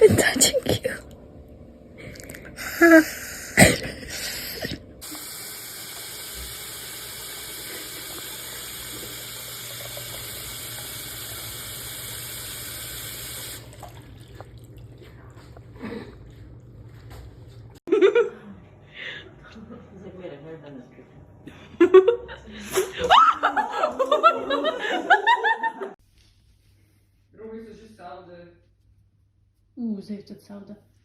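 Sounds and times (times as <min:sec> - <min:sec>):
water running from a tap: 0:04.2 - 0:15.7.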